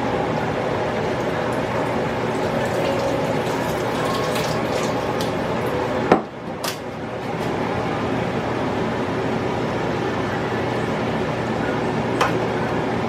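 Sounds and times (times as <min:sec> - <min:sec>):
steady background noise: 0:00.0 - 0:13.0
liquid pouring into a pan: 0:01.1 - 0:05.6.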